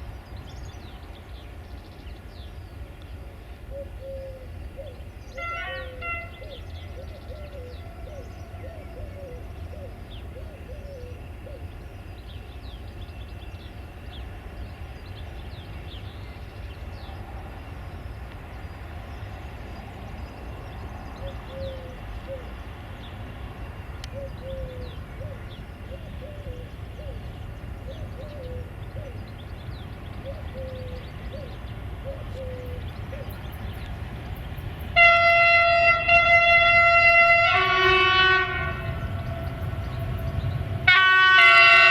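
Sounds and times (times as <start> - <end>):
birds calling: 0.0 - 17.7, 18.4 - 41.9
low outdoor rumble: 0.0 - 41.9
locomotive air horn: 5.3 - 6.7, 34.9 - 41.9.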